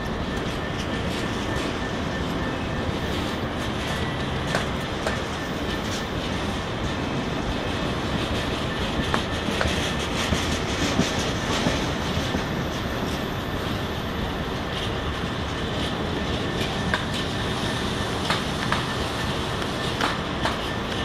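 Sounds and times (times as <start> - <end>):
freight train wheels rumbling: 0.0 - 21.0
wheels clicking over rail joints: 14.7 - 21.0.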